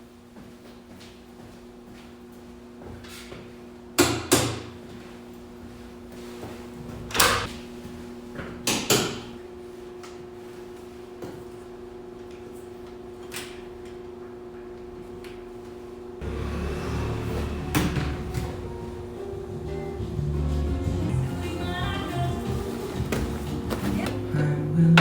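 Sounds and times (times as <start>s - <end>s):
steady machine hum: 5.0s - 25.0s.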